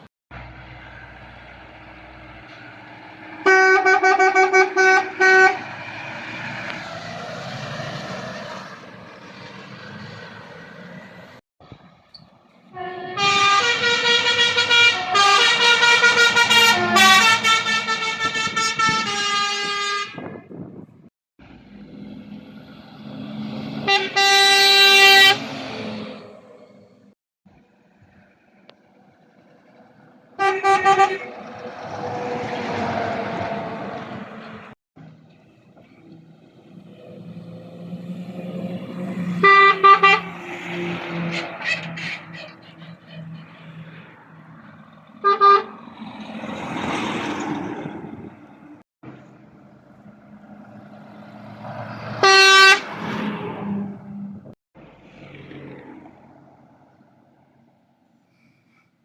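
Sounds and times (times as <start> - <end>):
passing traffic: 0.0 - 59.0
truck air horn blasts: 3.4 - 6.0, 12.7 - 20.4, 23.8 - 25.7, 30.4 - 32.6, 39.1 - 43.8, 45.2 - 45.8, 52.2 - 53.0.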